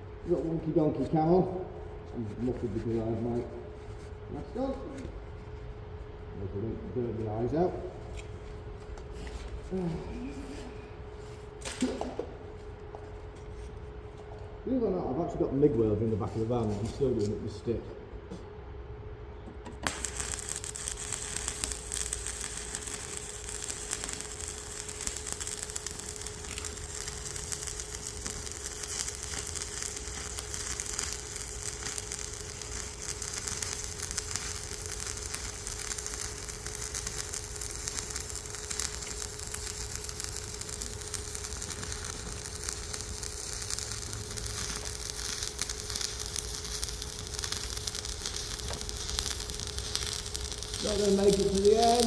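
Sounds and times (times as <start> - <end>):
steady hum: 0.0 - 52.0
welding arc crackling and sizzling: 7.4 - 12.7, 19.7 - 52.0.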